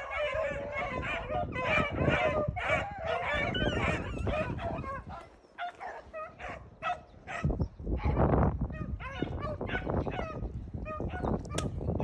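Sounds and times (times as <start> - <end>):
dogs baying: 0.0 - 8.2
wind rumble on microphone: 0.0 - 12.0.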